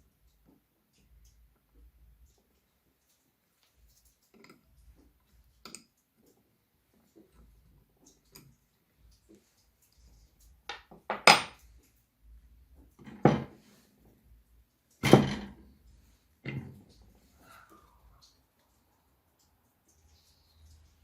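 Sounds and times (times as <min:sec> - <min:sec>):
metal tools clanking on hard surface: 0:11.0 - 0:11.6.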